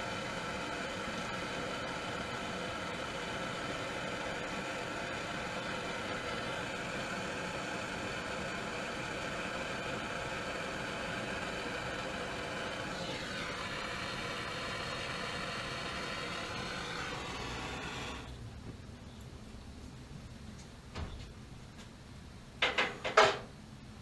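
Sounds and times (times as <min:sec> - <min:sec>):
machine drone with whining tones: 0:00.0 - 0:18.4.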